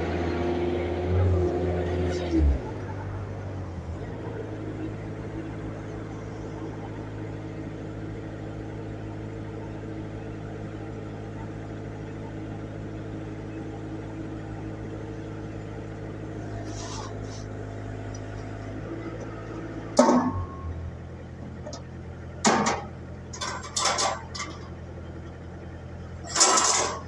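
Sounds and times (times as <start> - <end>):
engine humming: 0.0 - 27.0
engine knocks: 18.1 - 25.4.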